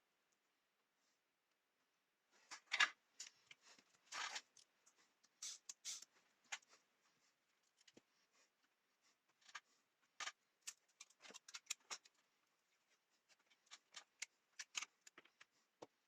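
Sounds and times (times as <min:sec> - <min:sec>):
small hard parts clicking and tapping: 0:02.5 - 0:06.7, 0:09.3 - 0:12.3, 0:13.3 - 0:16.0.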